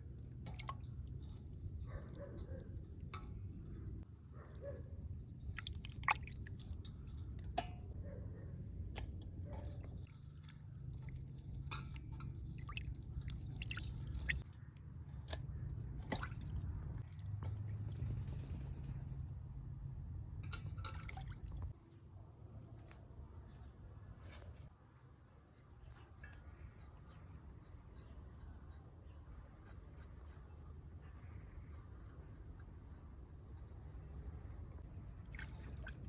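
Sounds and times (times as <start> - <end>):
soft wet handling noises: 0.0 - 4.1, 4.7 - 8.2, 8.9 - 17.9, 20.4 - 27.4, 33.5 - 36.0.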